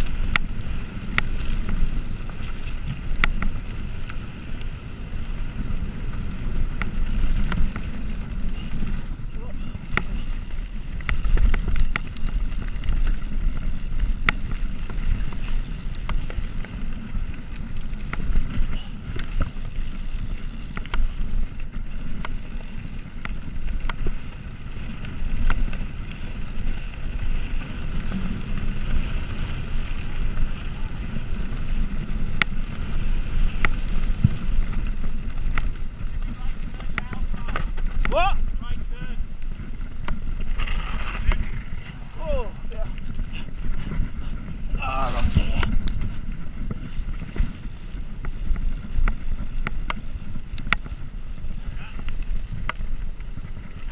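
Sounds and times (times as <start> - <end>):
wind buffeting microphone: 0.0 - 53.9
small clicks: 49.0 - 50.9.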